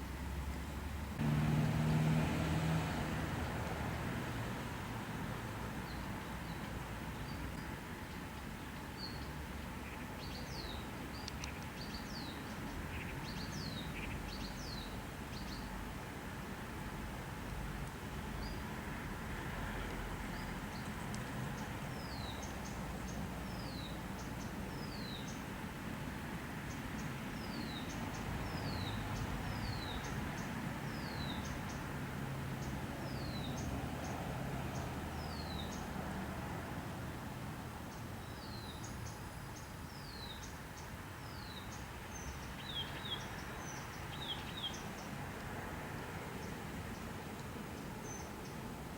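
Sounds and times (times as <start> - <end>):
steady background hiss: 0.0 - 48.9.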